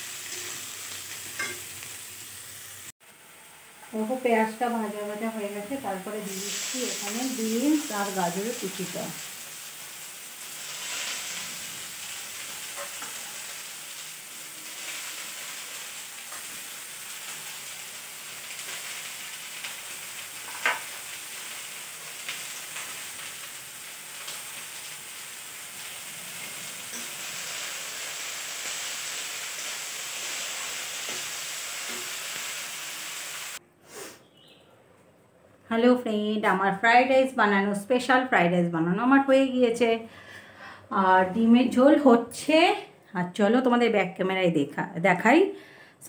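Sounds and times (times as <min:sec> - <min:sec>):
vegetables sizzling in a wok: 0:00.0 - 0:34.1.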